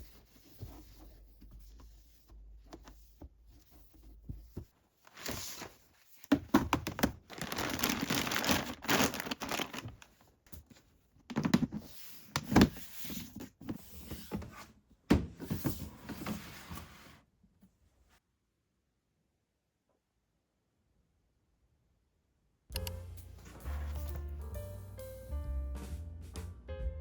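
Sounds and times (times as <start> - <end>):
packaging rustling and crackling: 5.0 - 10.3.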